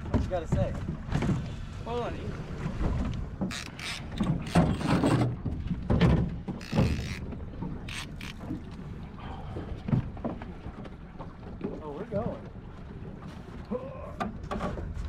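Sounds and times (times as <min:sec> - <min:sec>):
fishing reel clicking and rattling: 0:03.5 - 0:05.3, 0:06.6 - 0:08.5.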